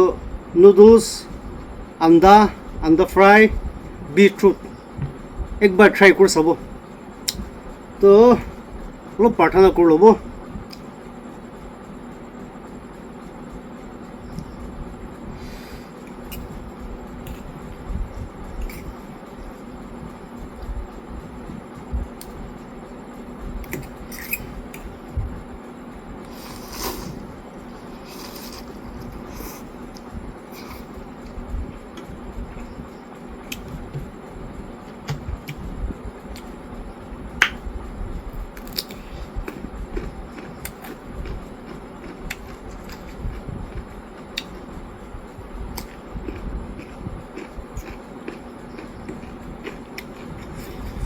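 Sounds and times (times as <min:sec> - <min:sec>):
wet chewing noises: 0:38.6 - 0:44.7, 0:45.7 - 0:51.0.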